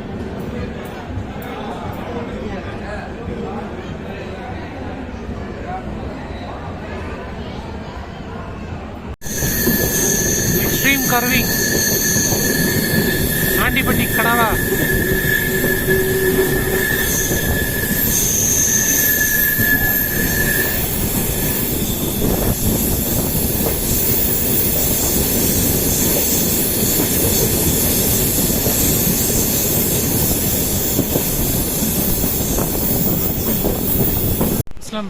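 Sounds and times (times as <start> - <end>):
train wheels squealing: 9.2 - 34.6.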